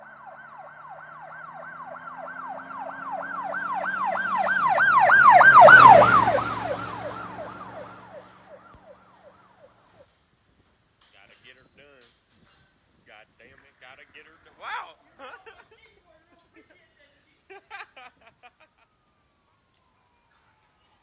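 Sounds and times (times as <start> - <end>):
siren yelping: 0.0 - 10.0
vehicle engine and road noise: 0.0 - 10.0.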